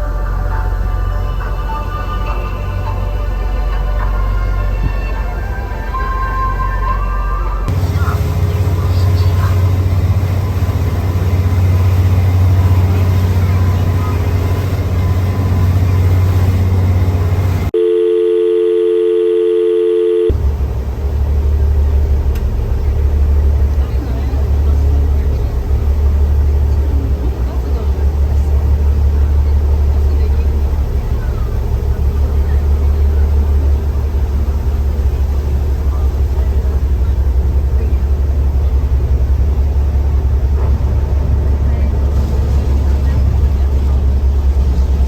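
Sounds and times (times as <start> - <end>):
wind: 0.0 - 17.9, 18.9 - 45.0
ferry engine drone: 0.0 - 45.0
water wash: 7.6 - 17.7, 20.3 - 45.0
steady electronic tone: 17.7 - 20.4.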